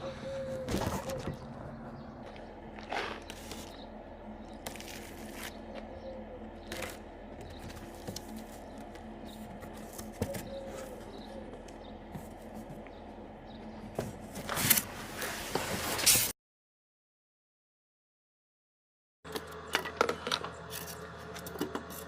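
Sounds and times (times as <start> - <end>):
faint steady hum: 0.0 - 15.6
packaging rustling and scraping: 14.0 - 16.3.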